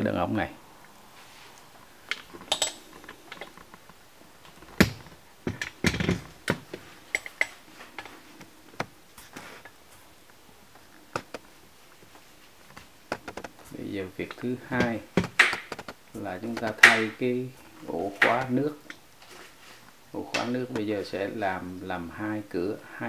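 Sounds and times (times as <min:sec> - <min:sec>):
sharp metallic knocks and clinks: 0:02.4 - 0:03.5.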